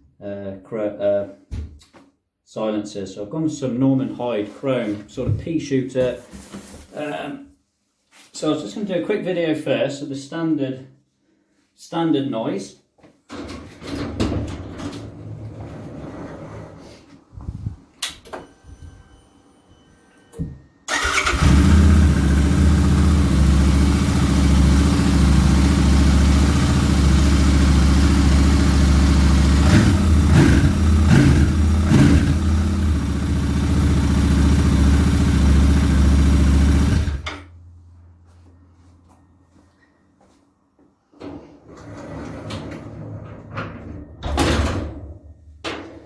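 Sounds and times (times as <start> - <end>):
motorcycle engine idling: 20.9 - 37.3
engine throttle blips: 20.9 - 37.7.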